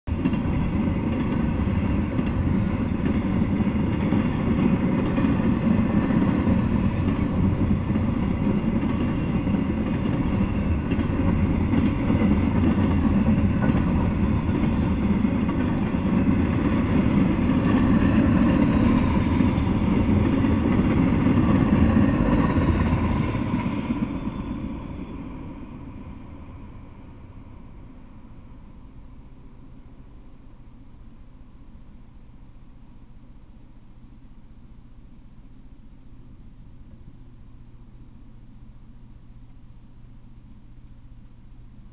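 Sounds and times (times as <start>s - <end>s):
freight train wheels clattering: 0.1s - 25.3s.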